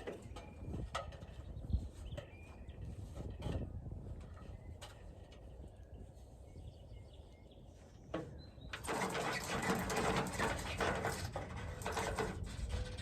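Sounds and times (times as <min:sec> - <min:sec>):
bird scrabbling inside metal downspout: 0:08.7 - 0:13.0.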